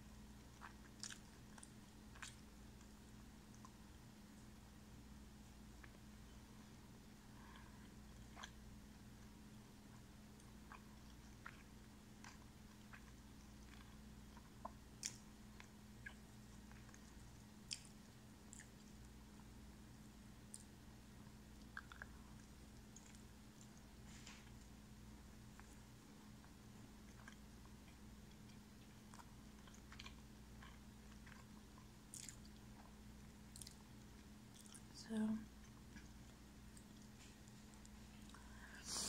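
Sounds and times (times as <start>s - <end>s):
faint low hum: 0.0s - 39.0s
quiet chewing: 0.1s - 4.6s, 5.3s - 39.0s
wet mouth clicks: 21.6s - 22.4s.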